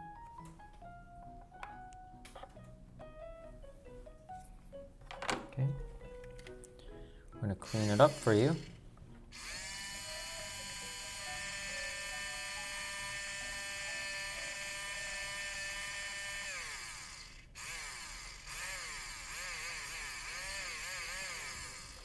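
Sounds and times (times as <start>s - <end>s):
toy drill whining: 7.6s - 22.0s.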